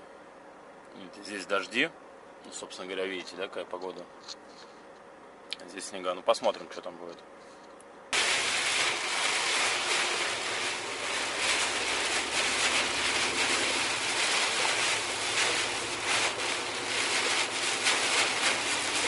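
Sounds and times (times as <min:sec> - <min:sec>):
heavy rain on windshield: 0:08.2 - 0:19.0
tyre and road noise: 0:08.2 - 0:19.0.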